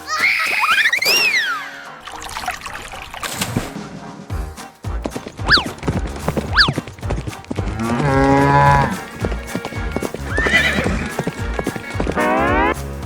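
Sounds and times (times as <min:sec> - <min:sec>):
cartoon background music: 0:00.0 - 0:13.0
falling whistle slides: 0:00.1 - 0:01.6
clip-clop footfalls: 0:03.3 - 0:13.0
animal call: 0:05.4 - 0:12.8.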